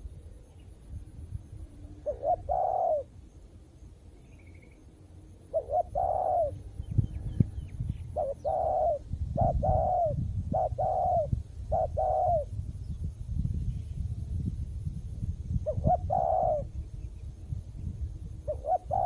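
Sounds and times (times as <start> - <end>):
faint high bird chirps: 0.0 - 14.1
dove cooing: 1.8 - 3.2, 5.4 - 12.5, 15.6 - 16.8, 18.4 - 19.0.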